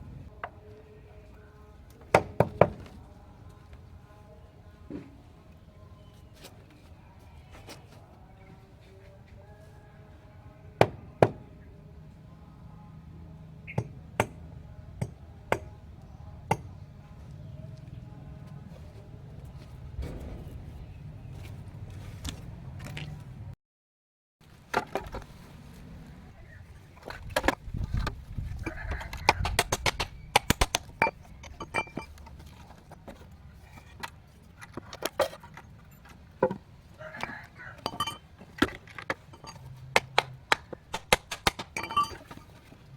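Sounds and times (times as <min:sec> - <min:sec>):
hard objects clinking together: 0:28.6 - 0:32.9, 0:37.2 - 0:42.8.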